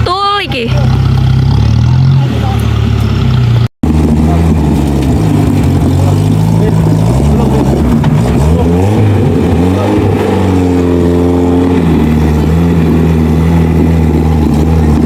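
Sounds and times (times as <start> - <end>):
off-road vehicle engine under load: 0.0 - 15.0.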